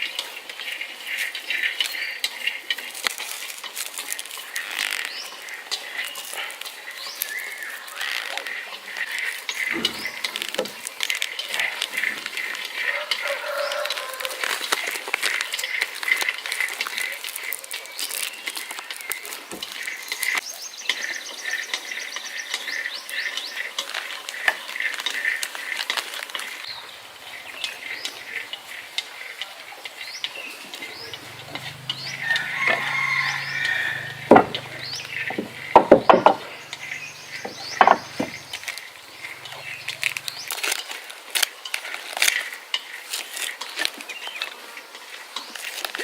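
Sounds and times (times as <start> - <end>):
birds chirping: 4.1 - 25.8, 26.4 - 40.8
sharp knocks: 31.1 - 38.7.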